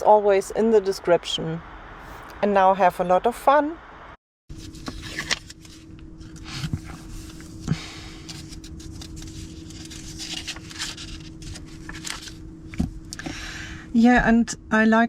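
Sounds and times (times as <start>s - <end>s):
faint steady hum: 0.0s - 15.0s
paper rustling: 4.5s - 12.4s.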